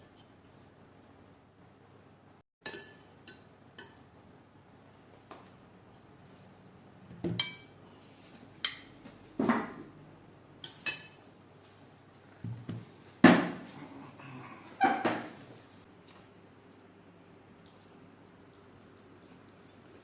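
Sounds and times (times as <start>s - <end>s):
cutlery and dishes clinking: 2.6s - 4.0s, 10.6s - 11.2s.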